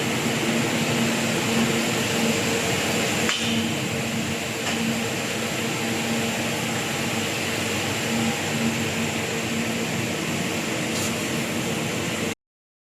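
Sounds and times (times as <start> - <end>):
electrical hum: 0.0 - 12.4.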